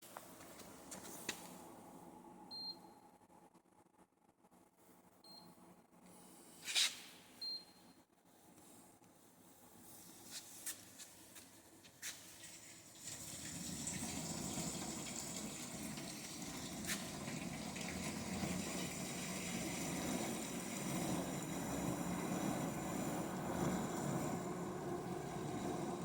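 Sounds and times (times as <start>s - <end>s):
dishwasher water rush and pump: 12.4s - 26.0s.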